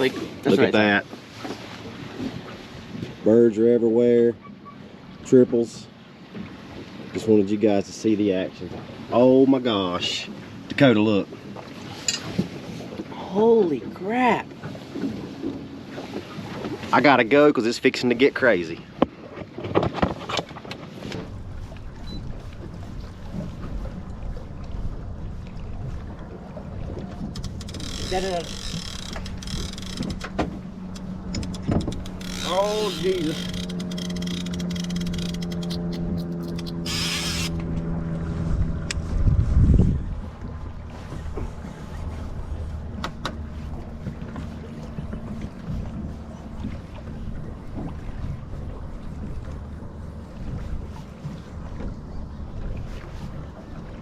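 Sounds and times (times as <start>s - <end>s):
water: 0.0s - 54.0s
wind rumbling on microphone: 19.5s - 54.0s
boat motor humming: 20.9s - 39.2s, 40.0s - 54.0s
sharp clicks: 27.2s - 37.6s
wind noise: 38.4s - 40.4s.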